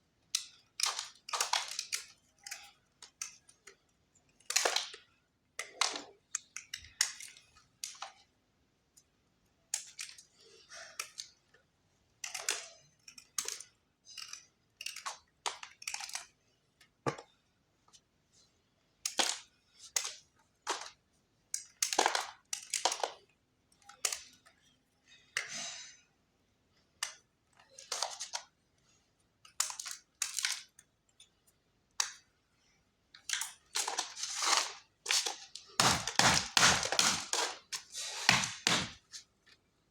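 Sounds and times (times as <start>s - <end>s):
chalk crunching and crumbling: 33.7s - 39.4s.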